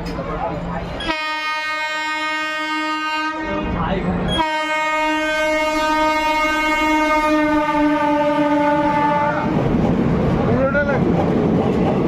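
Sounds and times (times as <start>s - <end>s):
rumble of passing train: 0.0s - 12.0s
locomotive air horn blast: 1.0s - 3.8s, 4.4s - 9.5s.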